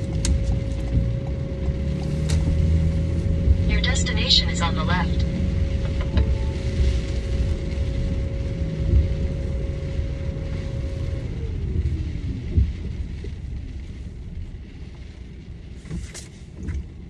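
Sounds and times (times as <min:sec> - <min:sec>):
whine falling in pitch: 0:00.0 - 0:13.5
car engine rumble: 0:00.0 - 0:17.0.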